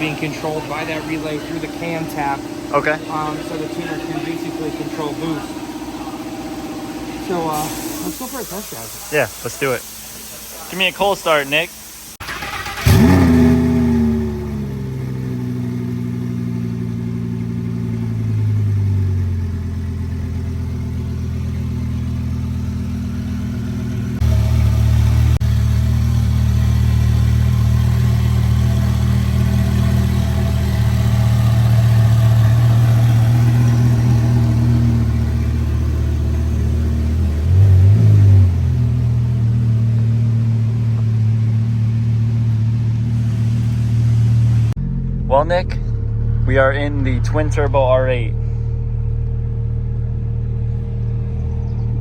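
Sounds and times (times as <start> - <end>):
car engine high idle: 0.0 - 52.0.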